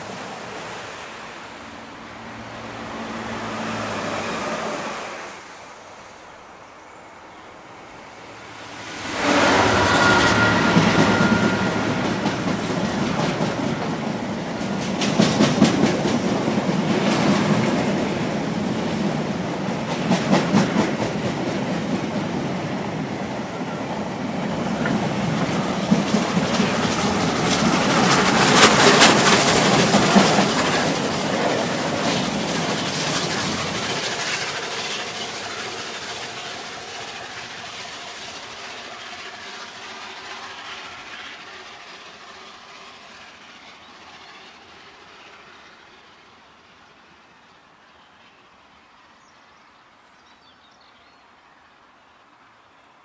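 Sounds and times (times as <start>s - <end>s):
train wheels clattering: 9.1s - 45.6s.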